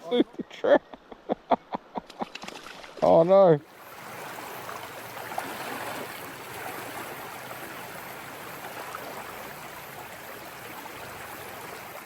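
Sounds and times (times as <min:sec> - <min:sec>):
river flowing over stones: 0:03.7 - 0:12.0.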